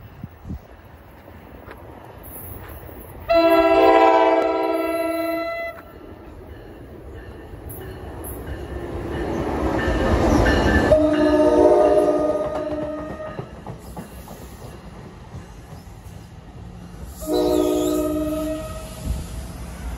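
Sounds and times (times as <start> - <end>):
rumble of approaching train: 0.0 - 19.9
locomotive air horn blast: 3.3 - 5.9, 10.9 - 13.3, 17.2 - 19.1.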